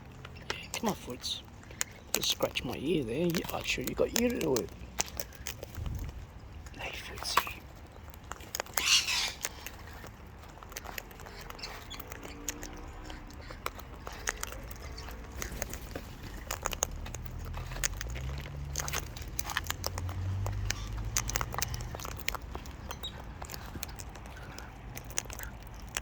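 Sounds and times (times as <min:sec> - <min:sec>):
parrot beak nibbling and clicking: 0:00.0 - 0:26.0.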